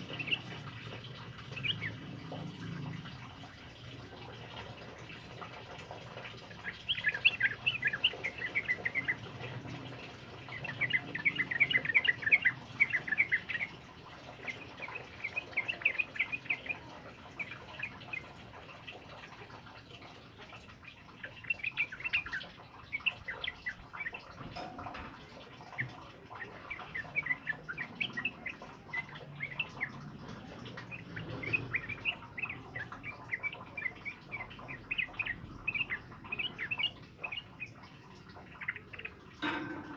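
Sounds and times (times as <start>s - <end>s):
bulbul chattering song: 0.0s - 39.9s.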